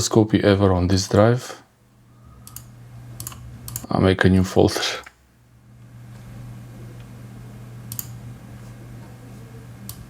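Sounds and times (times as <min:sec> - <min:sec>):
computer hard drive and fans humming: 0:00.0 - 0:10.0
sharp computer clicks: 0:02.4 - 0:03.9, 0:07.9 - 0:08.2.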